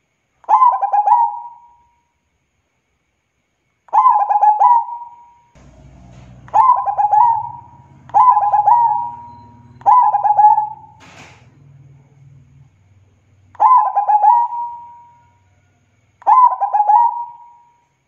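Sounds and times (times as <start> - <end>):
dove singing: 0.5 - 1.8, 3.9 - 12.6, 13.4 - 15.4, 16.2 - 17.7.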